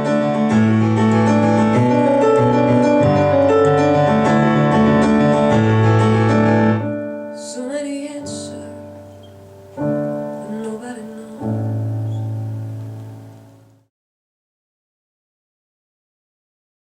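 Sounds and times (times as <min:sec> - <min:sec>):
piano chords: 0:00.0 - 0:13.9
woman singing: 0:07.4 - 0:09.3, 0:10.3 - 0:12.2.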